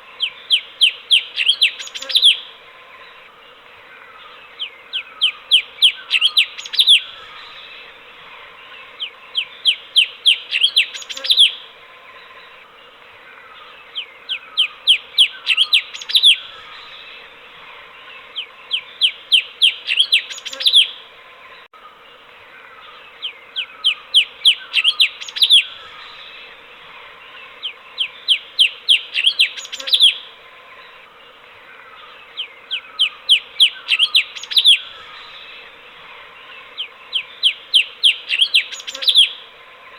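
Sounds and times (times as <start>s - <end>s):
bird whistling song phrases: 0.2s - 2.5s, 4.6s - 7.6s, 9.3s - 11.6s, 14.3s - 17.0s, 18.7s - 21.0s, 23.2s - 26.2s, 27.6s - 30.3s, 32.4s - 35.4s, 36.8s - 39.4s.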